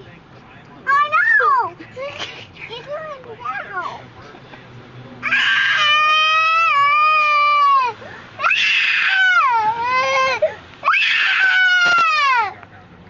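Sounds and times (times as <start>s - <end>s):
child screaming and wailing: 5.2s - 12.5s.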